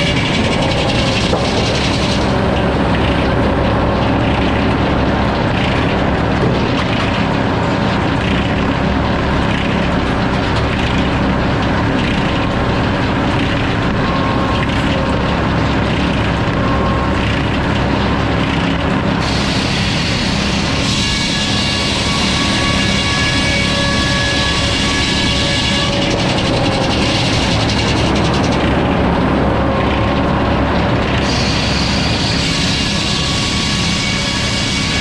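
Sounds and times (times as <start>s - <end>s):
saw cutting through log: 0.0s - 4.6s, 18.3s - 29.8s, 31.1s - 35.0s
engine drone: 0.0s - 35.0s.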